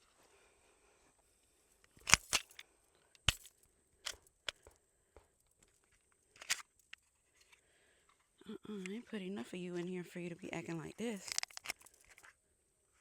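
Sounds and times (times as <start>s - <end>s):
metallic pistol clicks: 2.0s - 2.6s, 3.2s - 4.6s.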